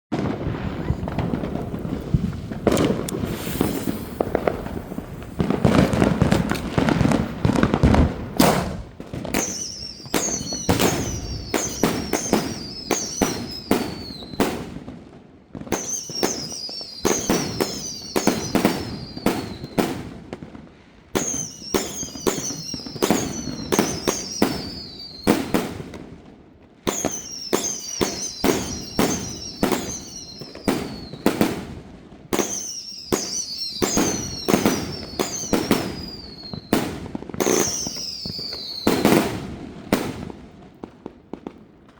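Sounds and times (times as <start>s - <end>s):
firework cake bangs: 0.1s - 14.8s, 26.9s - 31.7s
firework whistles falling in pitch: 2.6s - 7.6s, 8.4s - 14.6s, 15.7s - 20.0s, 21.2s - 25.5s, 26.9s - 31.5s, 32.4s - 39.4s.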